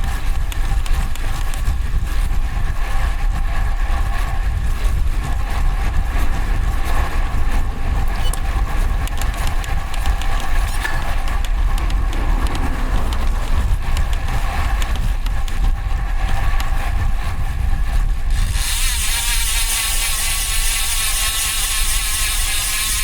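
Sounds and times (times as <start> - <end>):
wind rushing over microphone: 0.0 - 19.1
road noise: 5.1 - 16.6
bicycle freehub buzzing: 18.3 - 23.0.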